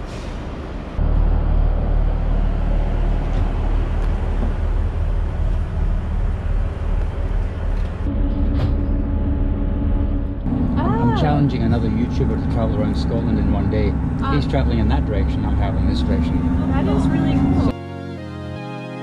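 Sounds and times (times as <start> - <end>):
diesel train rumbling: 0.0 - 17.8
higher engine hum: 0.0 - 19.0.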